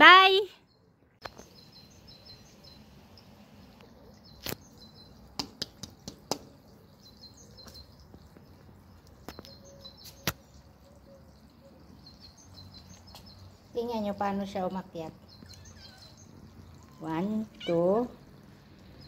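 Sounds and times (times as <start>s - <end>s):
small birds chirping faintly: 0.0s - 19.0s
sharp clicks or taps: 5.4s - 6.5s.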